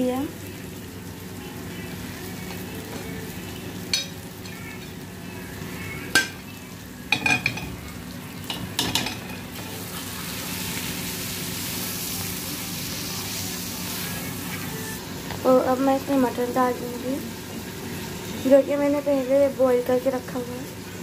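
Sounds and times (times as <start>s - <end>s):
food sizzling in oil: 0.0s - 21.0s.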